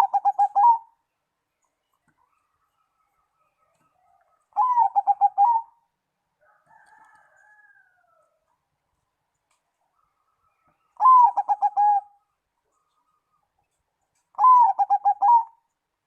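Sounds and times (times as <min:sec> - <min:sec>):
dove cooing: 0:00.0 - 0:01.0, 0:04.6 - 0:05.8, 0:11.0 - 0:12.2, 0:14.3 - 0:15.6.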